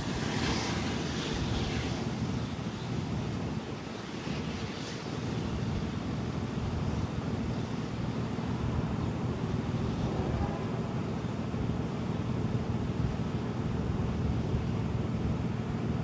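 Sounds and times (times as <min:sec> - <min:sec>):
wind on microphone: 0:00.0 - 0:11.1.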